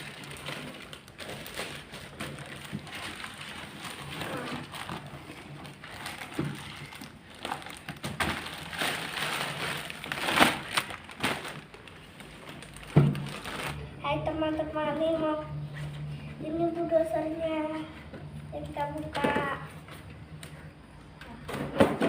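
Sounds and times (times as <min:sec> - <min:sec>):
packaging crinkling and rustling: 0:00.0 - 0:13.9.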